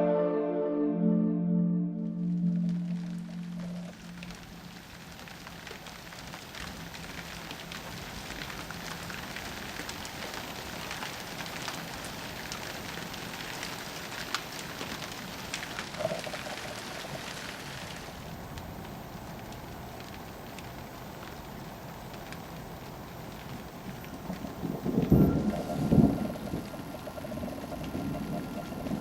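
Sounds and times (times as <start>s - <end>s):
intro music: 0.0s - 4.4s
steady rain: 2.4s - 29.0s.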